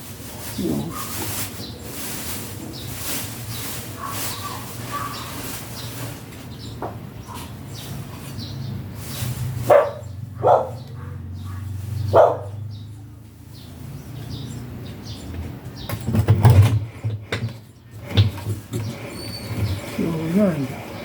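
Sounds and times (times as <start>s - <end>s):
dog barking: 0.8s - 1.2s, 4.0s - 5.4s, 9.6s - 12.6s
knocks and rattles: 15.3s - 20.0s.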